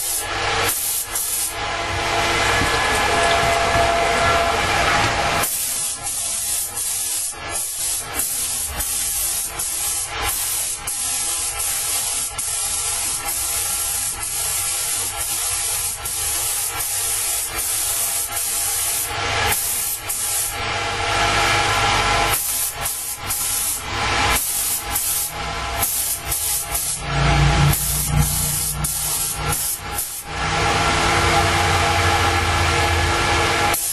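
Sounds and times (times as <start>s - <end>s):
spray gun hissing: 0.0s - 3.8s, 4.4s - 32.7s, 33.5s - 33.9s
steady low hum: 0.0s - 5.4s.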